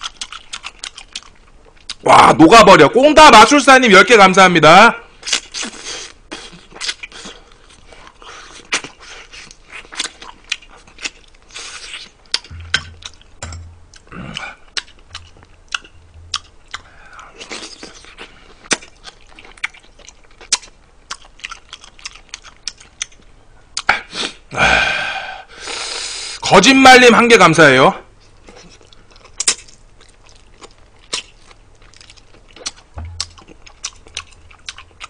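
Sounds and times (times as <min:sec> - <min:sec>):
wet chewing with mouth smacks: 0:00.0 - 0:02.0, 0:05.2 - 0:24.0, 0:28.4 - 0:35.0.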